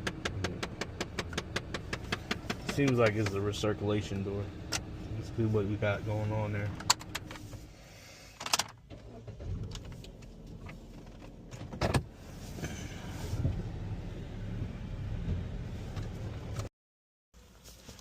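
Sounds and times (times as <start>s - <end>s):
knocks and clatter in a car: 0.0s - 3.7s, 8.4s - 12.1s.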